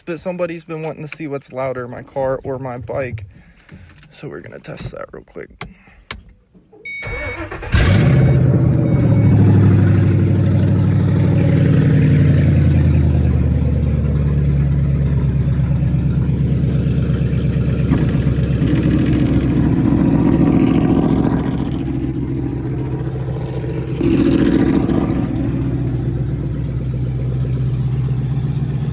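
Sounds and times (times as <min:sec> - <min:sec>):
car engine starting and revving: 0:07.0 - 0:28.9.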